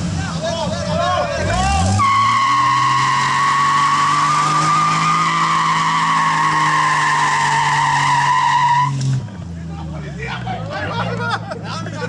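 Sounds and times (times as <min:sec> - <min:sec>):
tyres squealing: 0:01.4 - 0:09.1
car engine at high revs: 0:01.4 - 0:09.6.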